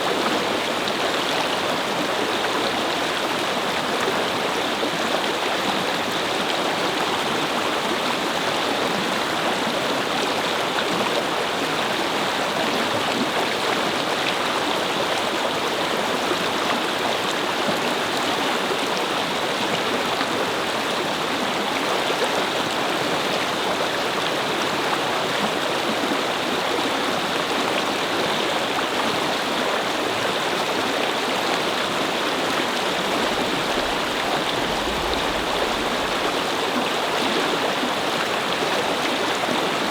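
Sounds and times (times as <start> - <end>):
brook water flowing over stones: 0.0 - 39.9
faint low rumble: 32.5 - 37.3.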